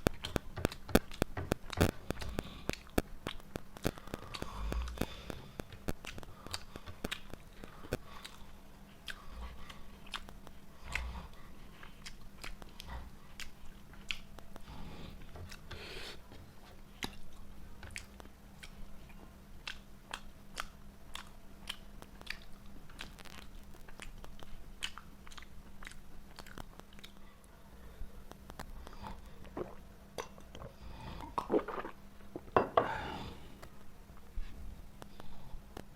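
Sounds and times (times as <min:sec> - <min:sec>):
crunching food: 0:00.0 - 0:14.7, 0:16.6 - 0:27.3
faint steady hum: 0:00.0 - 0:35.9
person chewing food: 0:00.0 - 0:35.9
wet mouth clicks: 0:00.1 - 0:14.6, 0:19.6 - 0:27.2.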